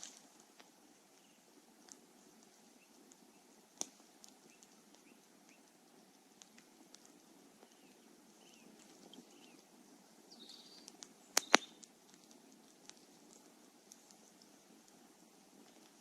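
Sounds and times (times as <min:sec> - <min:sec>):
campfire hissing and crackling: 0:00.0 - 0:16.0
sharp loud fire pops: 0:11.4 - 0:11.8.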